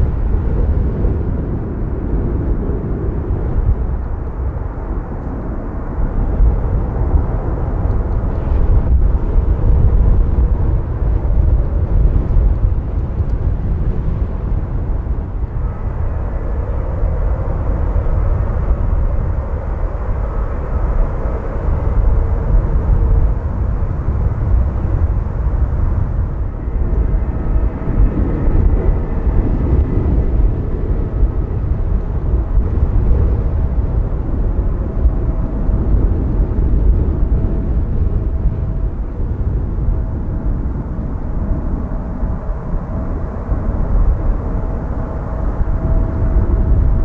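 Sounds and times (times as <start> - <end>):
wind rumble on microphone: 0.0 - 47.0
jet engines whining: 14.6 - 47.0.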